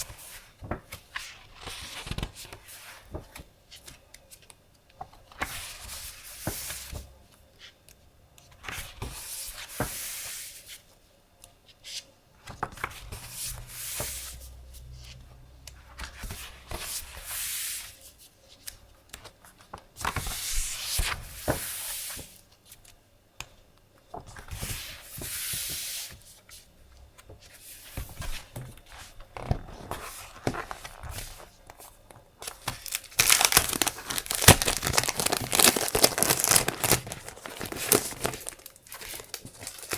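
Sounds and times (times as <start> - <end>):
paper sheets rustling: 27.4 - 39.9.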